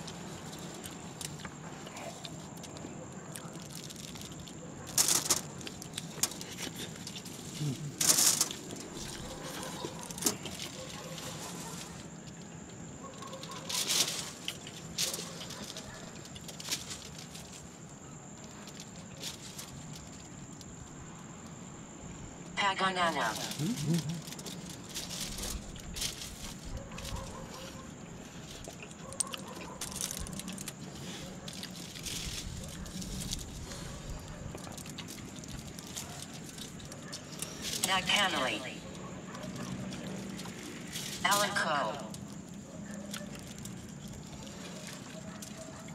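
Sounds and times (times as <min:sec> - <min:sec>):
eating crackling rustles: 0:00.0 - 0:20.8, 0:23.3 - 0:41.3.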